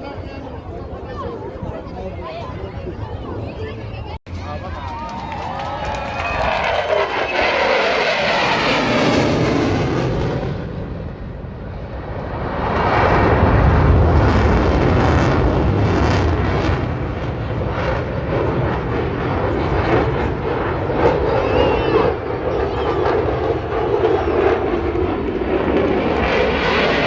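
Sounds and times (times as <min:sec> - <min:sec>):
fighter jet passing: 0:06.0 - 0:27.0.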